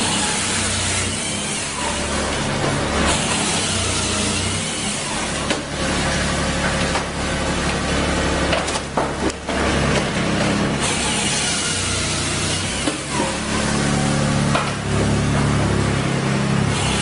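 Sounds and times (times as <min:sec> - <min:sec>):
firewood processor machine drone: 0:00.0 - 0:17.0
wood splitting cracks: 0:08.4 - 0:10.5, 0:14.5 - 0:14.8.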